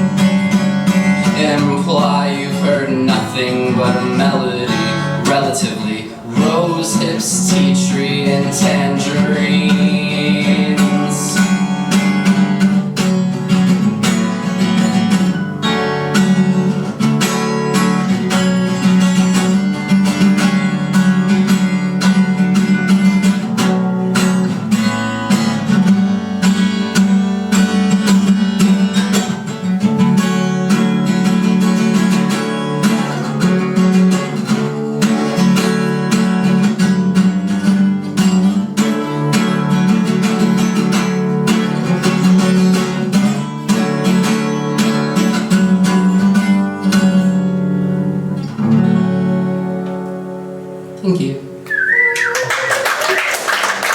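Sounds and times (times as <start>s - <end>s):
acoustic guitar strummed and picked: 0.0s - 52.3s.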